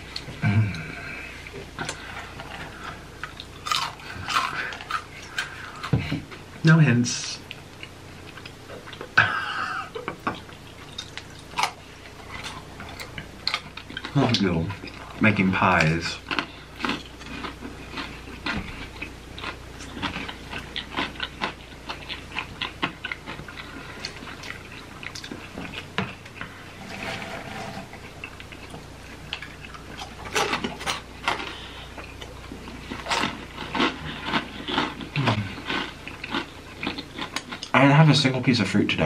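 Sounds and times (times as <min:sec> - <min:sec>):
crunchy chips chewing: 0:01.8 - 0:06.4, 0:10.4 - 0:26.6, 0:28.0 - 0:38.0.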